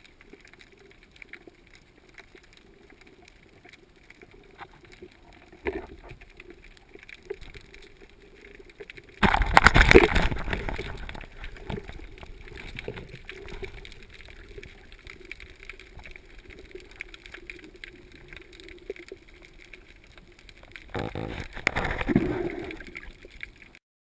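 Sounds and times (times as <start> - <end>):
faint clicks: 0.0 - 23.8
low underwater hum: 0.0 - 23.8
rush of water: 9.2 - 23.8.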